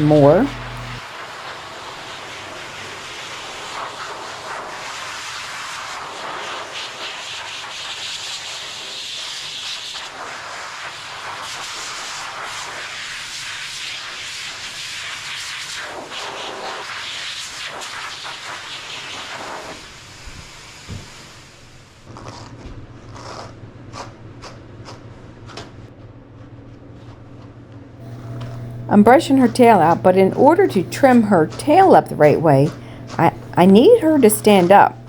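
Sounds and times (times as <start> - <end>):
pet dryer blowing air: 0.0 - 7.2, 28.0 - 35.0.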